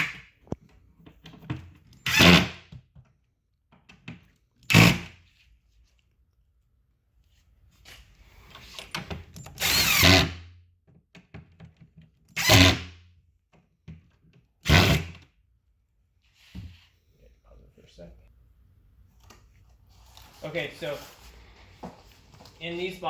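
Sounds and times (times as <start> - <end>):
power drill driving screws: 2.0 - 2.6, 4.7 - 5.1, 9.5 - 10.4, 12.3 - 12.9, 14.6 - 15.2.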